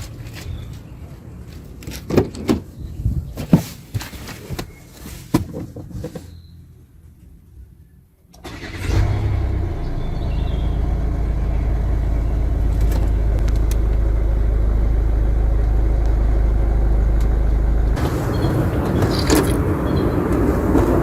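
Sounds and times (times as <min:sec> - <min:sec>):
car engine starting and rumbling: 0:08.3 - 0:21.0.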